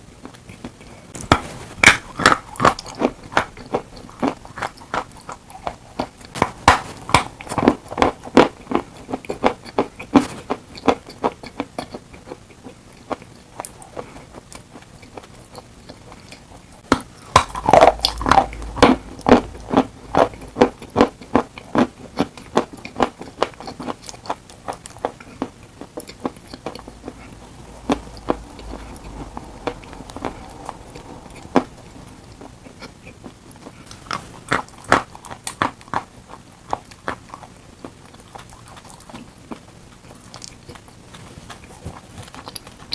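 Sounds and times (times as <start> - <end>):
chalk being chewed: 0.2 - 42.9.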